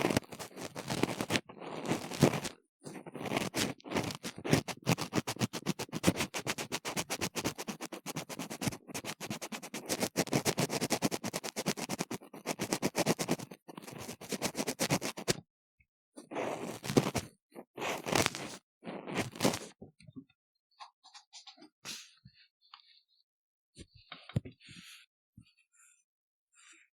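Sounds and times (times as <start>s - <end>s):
ear-cleaning tool scraping: 0.0s - 15.3s, 16.2s - 19.7s.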